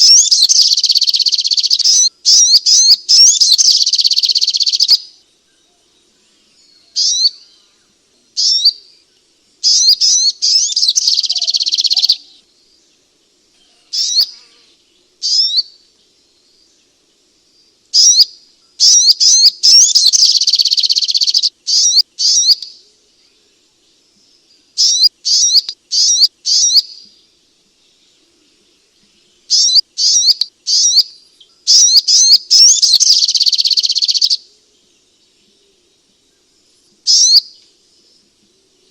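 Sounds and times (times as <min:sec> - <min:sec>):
bird fast trilling: 0:00.0 - 0:05.1, 0:07.0 - 0:07.4, 0:09.6 - 0:12.4, 0:13.9 - 0:14.5, 0:15.2 - 0:15.7, 0:18.0 - 0:18.2, 0:18.8 - 0:22.6, 0:24.8 - 0:26.9, 0:29.5 - 0:31.1, 0:31.7 - 0:34.4, 0:37.1 - 0:37.5
bird sharp high chirps: 0:00.0 - 0:05.2, 0:06.8 - 0:07.6, 0:08.4 - 0:09.0, 0:09.6 - 0:12.4, 0:13.9 - 0:14.5, 0:15.2 - 0:15.8, 0:17.9 - 0:22.8, 0:24.8 - 0:27.2, 0:29.5 - 0:34.5, 0:37.1 - 0:37.6.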